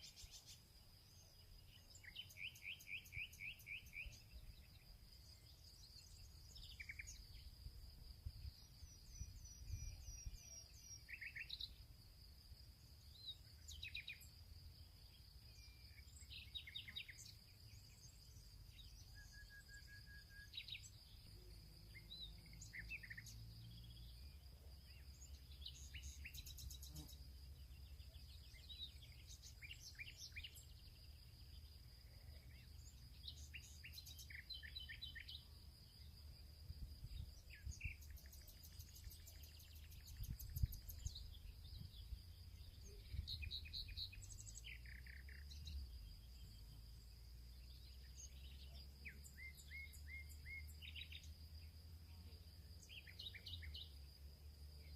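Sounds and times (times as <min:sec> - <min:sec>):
birds chirping and trilling: 0:00.0 - 0:11.8, 0:24.9 - 0:36.0, 0:37.0 - 0:47.0.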